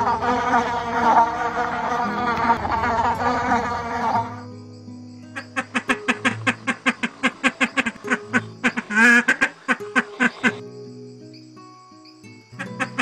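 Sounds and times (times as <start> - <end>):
animal making quack-like calls: 0.0 - 4.4, 5.4 - 10.6.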